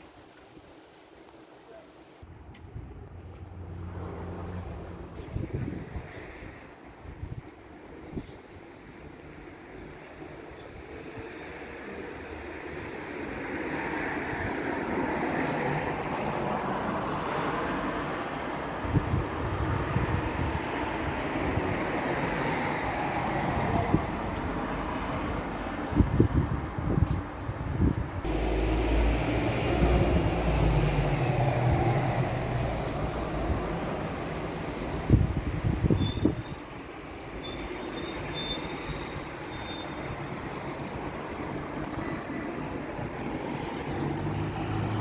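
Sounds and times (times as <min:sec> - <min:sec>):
wind buffeting microphone: 0:04.8 - 0:08.4, 0:18.8 - 0:21.8, 0:22.9 - 0:33.8, 0:34.7 - 0:36.6
thin high squealing tones: 0:35.6 - 0:40.7.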